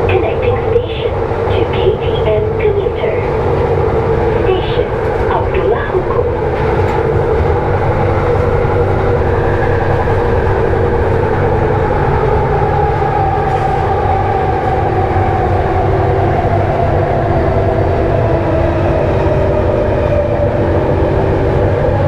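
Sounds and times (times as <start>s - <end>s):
train rumbling with whine: 0.0s - 22.0s.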